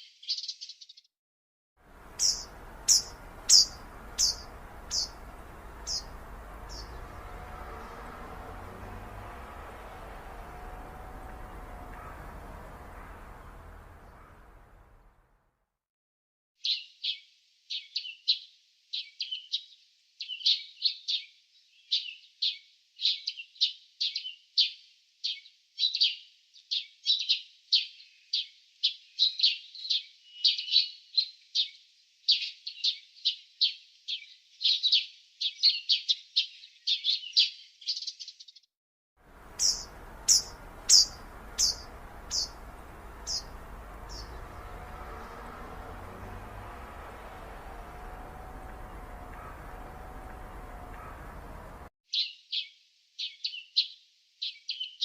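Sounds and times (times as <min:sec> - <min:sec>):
songbirds chirping rapidly: 0:00.0 - 0:01.0, 0:01.9 - 0:15.2, 0:16.6 - 0:38.6, 0:39.3 - 0:55.0
faint outdoor hiss: 0:01.9 - 0:15.1, 0:39.3 - 0:51.8
higher falling bird chirps: 0:02.0 - 0:15.1, 0:39.4 - 0:52.4.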